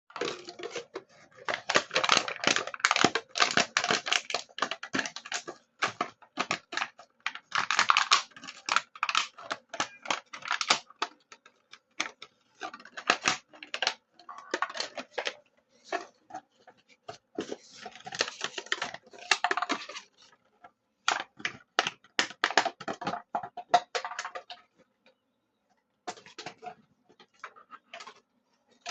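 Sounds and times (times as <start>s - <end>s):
plastic bottle crackling: 0.1s - 20.4s.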